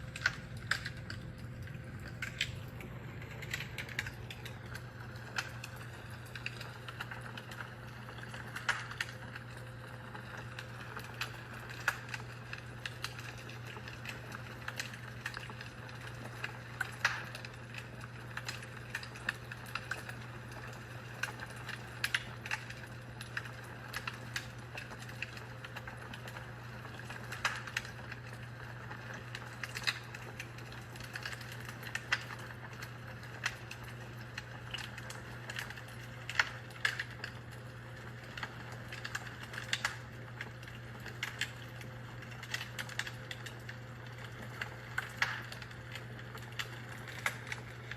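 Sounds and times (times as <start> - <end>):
low hum: 0.0 - 11.2
fireplace crackling: 0.0 - 47.9.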